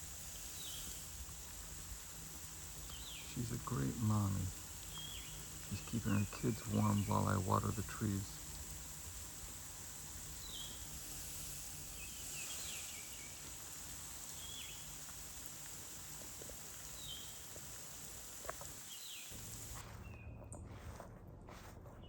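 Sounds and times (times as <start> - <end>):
garden hose spraying water: 0.0 - 19.9
high bird chirps: 2.8 - 8.8, 10.2 - 15.0, 16.7 - 20.2.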